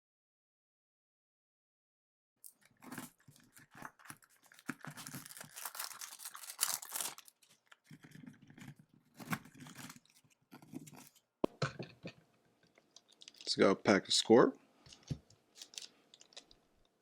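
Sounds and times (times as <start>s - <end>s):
packaging tearing and crinkling: 2.4s - 11.2s, 15.5s - 16.6s.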